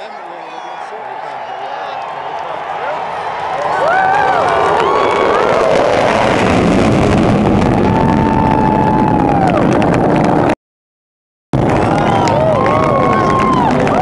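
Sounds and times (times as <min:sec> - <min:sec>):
crowd shouting: 0:00.0 - 0:06.1, 0:11.6 - 0:14.0
jet roar overhead: 0:01.8 - 0:10.6, 0:11.6 - 0:14.0.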